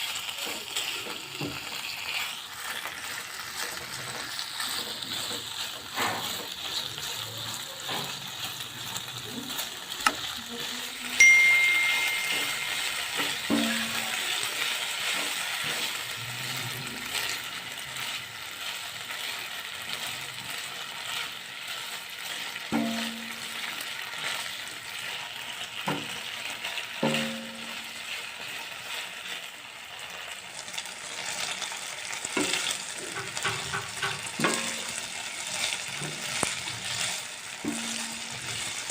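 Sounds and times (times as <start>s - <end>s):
chicken sizzling in a pan: 0.0s - 38.9s
utensil scraping a pan: 2.0s - 10.9s, 32.3s - 38.9s.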